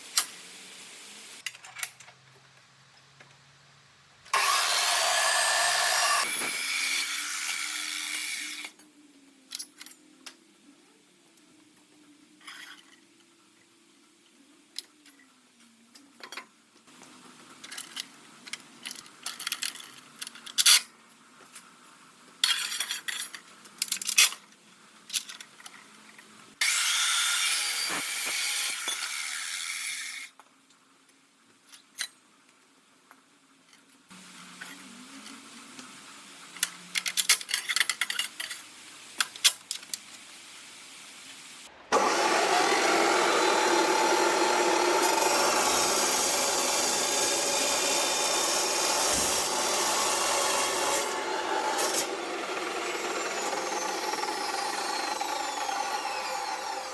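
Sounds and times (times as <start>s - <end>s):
steady hiss: 0.0s - 1.4s, 38.3s - 41.9s
tools clanking and scraping: 22.4s - 24.4s, 37.0s - 39.6s.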